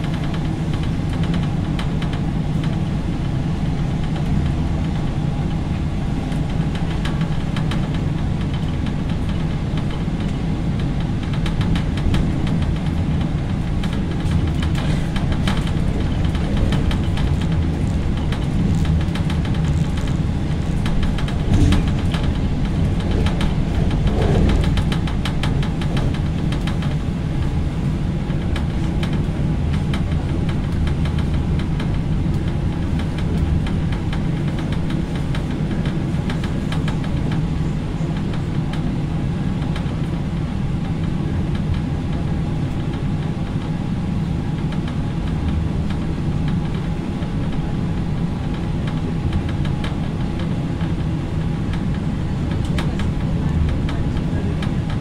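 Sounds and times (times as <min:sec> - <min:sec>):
train wheels rumbling on rails: 0:00.0 - 0:55.0
train bump: 0:05.8 - 0:38.9
wheels clicking and clattering: 0:11.0 - 0:27.6.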